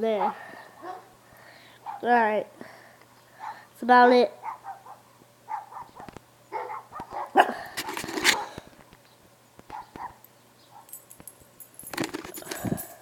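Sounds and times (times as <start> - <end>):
dog barking: 0.1 - 1.1, 1.8 - 2.1, 3.4 - 3.7, 4.4 - 7.6, 8.3 - 8.6, 9.7 - 10.9.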